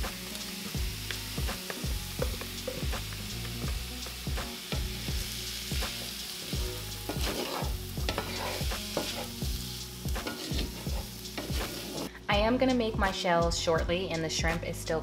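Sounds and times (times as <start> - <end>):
food sizzling in oil: 0.0 - 12.1
spatula scraping and knocking pan: 1.6 - 5.0, 7.0 - 9.5, 10.1 - 12.1.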